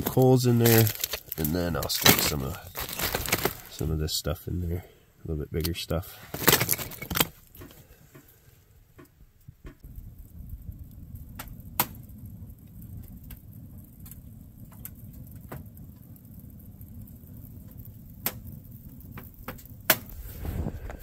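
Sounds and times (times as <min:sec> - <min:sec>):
wood stove fire crackling: 0:00.0 - 0:21.0.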